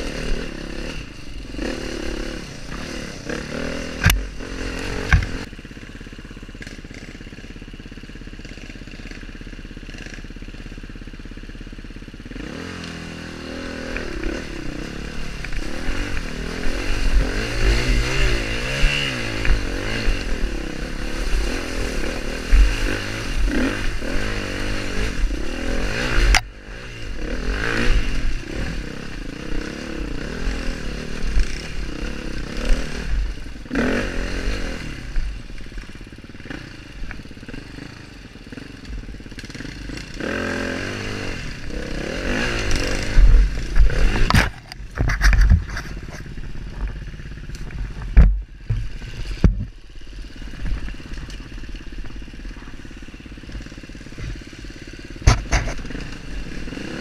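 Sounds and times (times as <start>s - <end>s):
dirt bike engine revving: 0.0s - 57.0s
knocks and clatter: 42.7s - 47.0s, 47.6s - 49.7s, 55.2s - 55.9s.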